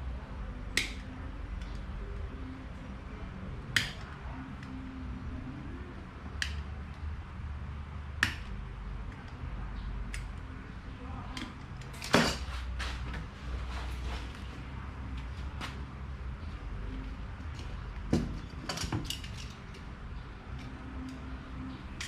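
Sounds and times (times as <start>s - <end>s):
metallic clicks of tools: 17.5s - 19.9s.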